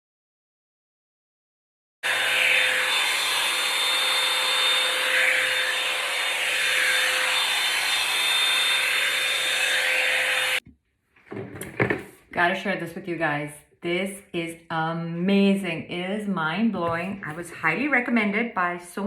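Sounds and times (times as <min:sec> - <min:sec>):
hot-air brush dryer running: 0:02.0 - 0:10.6.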